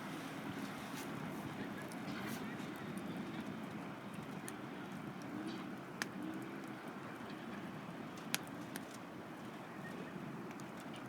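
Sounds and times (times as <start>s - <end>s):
campfire crackling and popping: 0.0s - 9.6s, 10.2s - 11.0s
low fire rumble: 0.0s - 11.0s.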